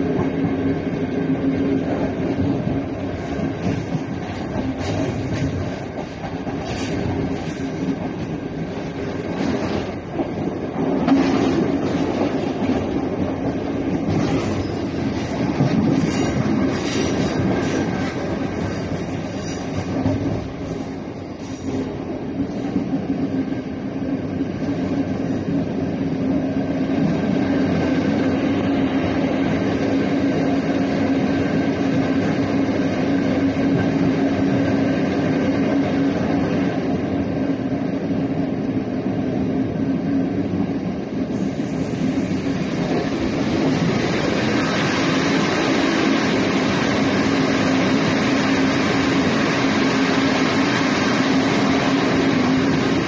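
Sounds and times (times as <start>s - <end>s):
wheels rumbling on rails: 0.0s - 53.0s
rail-joint clicks: 1.6s - 23.1s.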